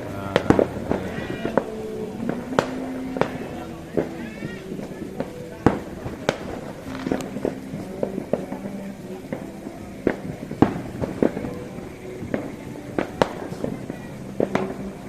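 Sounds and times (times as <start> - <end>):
distant firework explosions: 0.0 - 15.0
firework bangs and pops: 5.2 - 11.6.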